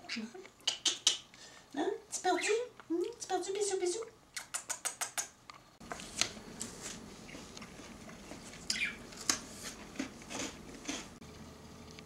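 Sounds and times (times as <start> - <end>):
budgie chirp: 8.7 - 9.1.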